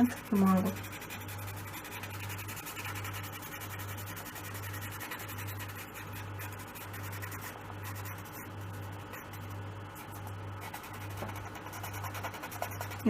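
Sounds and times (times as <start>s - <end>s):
pastel rubbing on paper: 0.0s - 13.0s.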